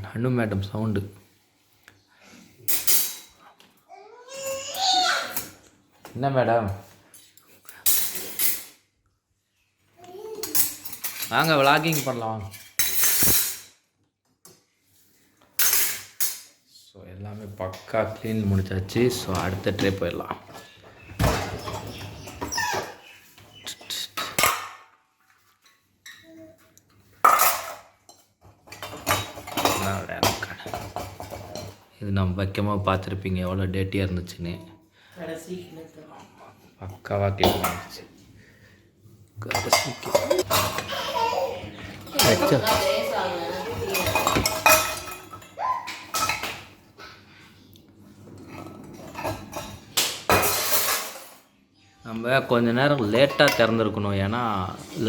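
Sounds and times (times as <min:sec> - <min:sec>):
dishes and utensils clinking: 0:02.6 - 0:03.7, 0:06.7 - 0:09.0, 0:10.1 - 0:16.6, 0:17.4 - 0:31.9, 0:36.1 - 0:38.2, 0:39.4 - 0:47.0, 0:48.0 - 0:55.0.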